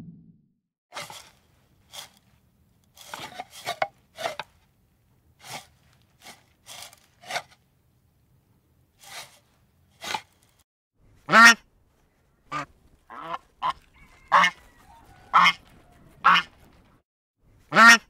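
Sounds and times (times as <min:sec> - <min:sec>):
tortoise scraping over dry dirt: 0:00.9 - 0:04.6, 0:05.4 - 0:07.6, 0:09.0 - 0:10.6.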